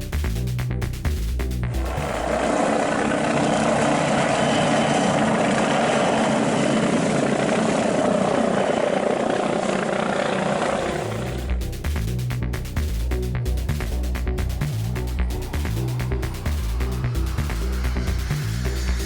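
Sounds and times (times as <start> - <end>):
helicopter rotor and engine: 1.7 - 11.6.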